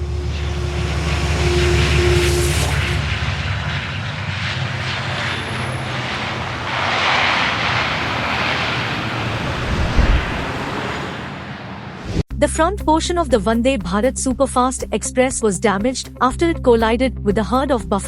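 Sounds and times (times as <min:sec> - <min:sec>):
moving vehicle rumble: 0:00.0 - 0:12.2
short thump: 0:09.7 - 0:10.5.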